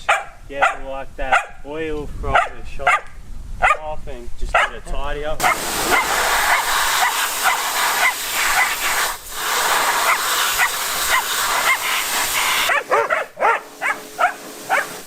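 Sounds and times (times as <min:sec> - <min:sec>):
dog yapping: 0:00.1 - 0:01.6, 0:02.4 - 0:03.8, 0:05.4 - 0:08.8, 0:09.9 - 0:12.0, 0:12.7 - 0:15.0
water spraying: 0:05.4 - 0:15.0.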